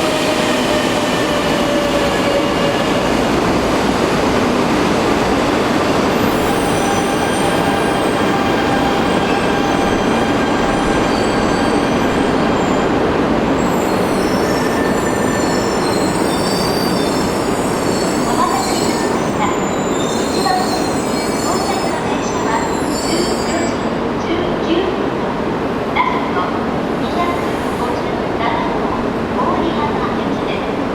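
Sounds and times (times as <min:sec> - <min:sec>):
train rumbling: 0:00.0 - 0:30.9
wheel and brake squeals: 0:13.7 - 0:23.9.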